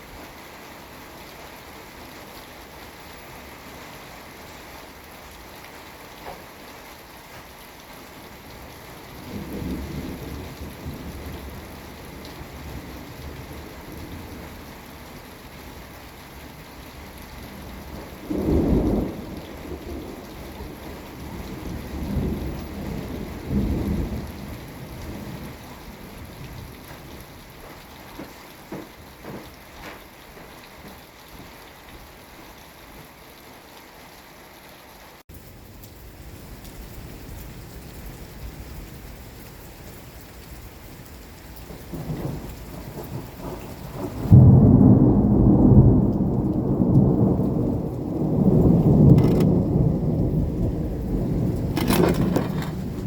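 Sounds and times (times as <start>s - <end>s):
steady rain: 0.0s - 53.0s
thunder rumbling: 9.2s - 14.6s, 17.5s - 27.7s, 41.7s - 53.0s.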